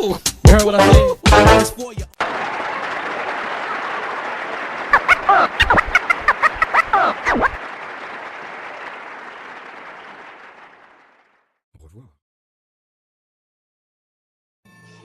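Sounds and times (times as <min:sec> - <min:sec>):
crowd applauding and cheering: 0:02.2 - 0:11.3
whoops and shouts: 0:04.9 - 0:07.6.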